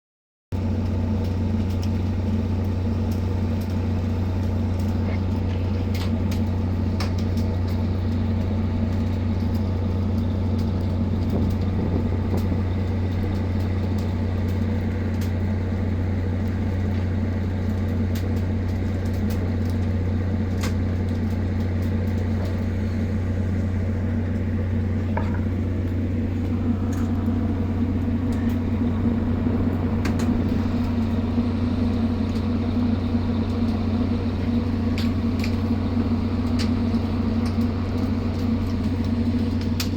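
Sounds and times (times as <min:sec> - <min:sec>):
ship engine deep hum: 0:00.6 - 0:39.9
higher drone: 0:22.4 - 0:39.9.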